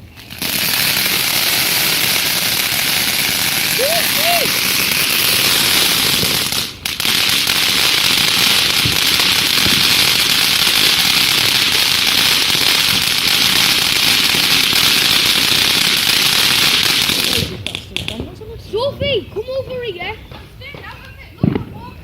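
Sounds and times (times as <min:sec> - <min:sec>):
ground firework hissing and crackling: 0:00.0 - 0:22.0.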